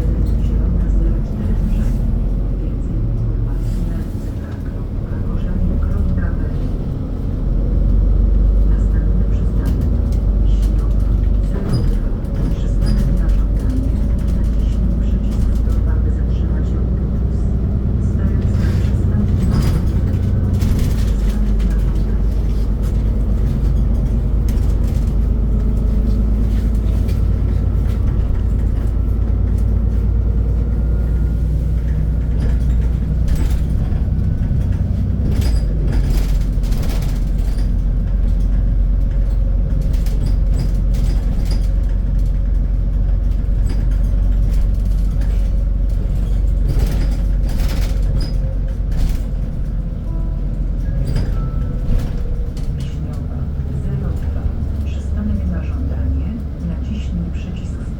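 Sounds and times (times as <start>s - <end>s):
bus engine rumble with whine: 0.0s - 57.9s
knocks and rattles: 18.4s - 30.6s, 32.2s - 50.1s.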